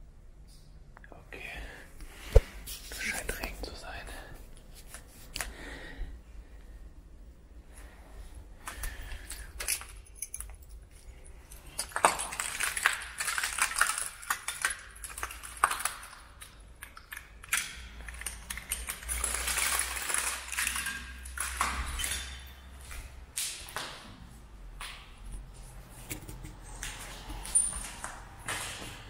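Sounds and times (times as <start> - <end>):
clicks taps and light clinks: 8.7 - 19.2.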